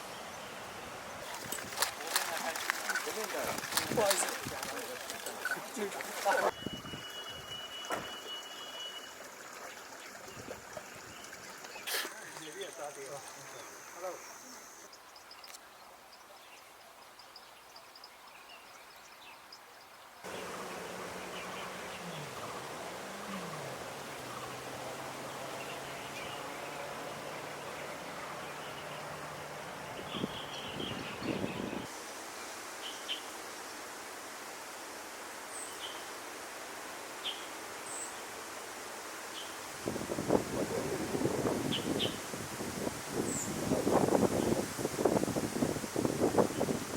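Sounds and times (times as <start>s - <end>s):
steady outdoor hiss: 0.0s - 46.9s
small birds chirping: 9.7s - 31.9s
steady hiss-like noise: 27.0s - 46.9s.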